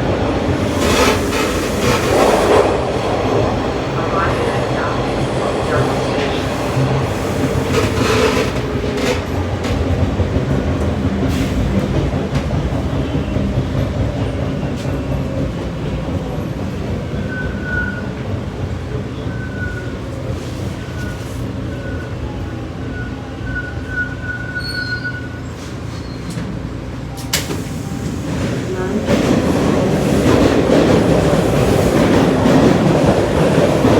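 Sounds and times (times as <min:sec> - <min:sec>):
train wheels rumbling on rail: 0:00.0 - 0:33.9
high wheel squeal: 0:22.8 - 0:26.4.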